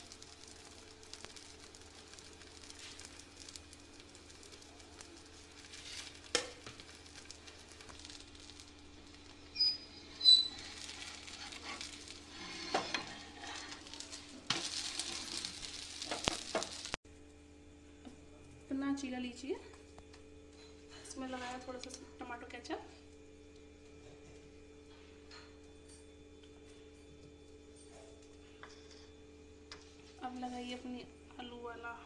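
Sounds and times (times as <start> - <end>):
food sizzling in oil: 0.0 - 17.0
metal spatula scraping and squeaking: 9.5 - 16.7.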